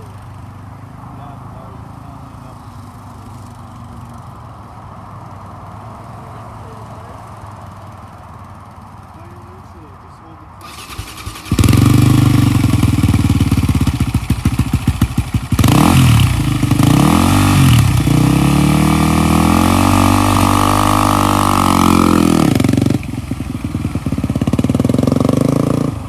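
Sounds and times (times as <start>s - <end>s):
dirt bike engine revving: 10.6s - 26.0s.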